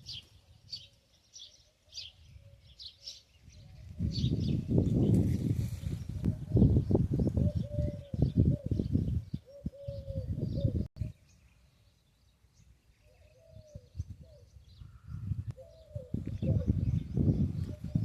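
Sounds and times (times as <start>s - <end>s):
birds cooing: 6.2s - 11.4s, 12.9s - 18.0s.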